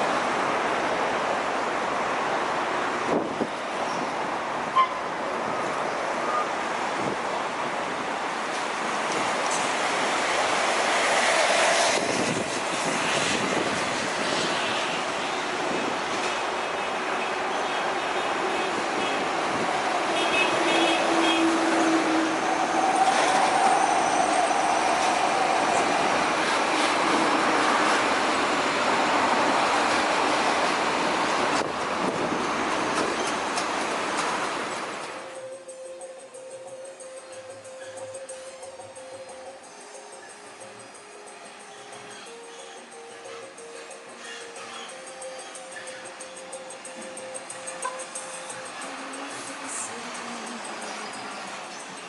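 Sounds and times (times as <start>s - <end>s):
trucks driving past: 0.0s - 17.0s, 18.2s - 52.0s
highway traffic passing: 0.0s - 52.0s.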